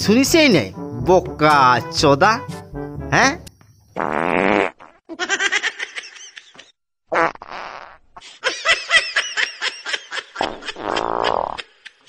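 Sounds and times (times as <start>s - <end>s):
buzzy fart sound: 4.0s - 5.0s, 7.1s - 8.1s, 10.4s - 11.6s
person laughing: 8.2s - 12.0s.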